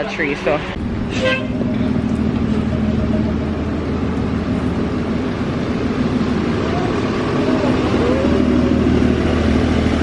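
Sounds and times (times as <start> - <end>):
hum of vehicle traffic: 0.0 - 10.0
heavy rain pouring: 3.5 - 10.0.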